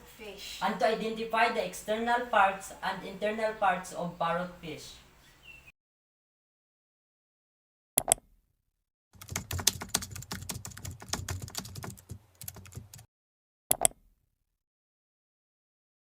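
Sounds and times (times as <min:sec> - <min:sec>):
keyboard typing clicks: 0:09.2 - 0:13.1.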